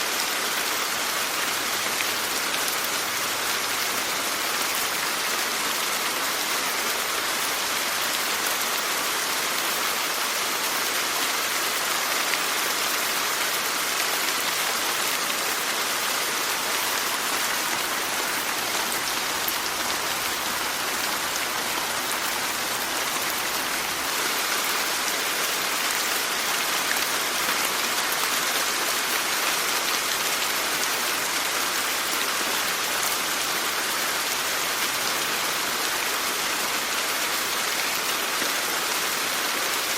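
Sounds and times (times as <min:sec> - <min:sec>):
steady rain falling: 0:00.0 - 0:39.9
raindrops pattering: 0:13.4 - 0:34.0.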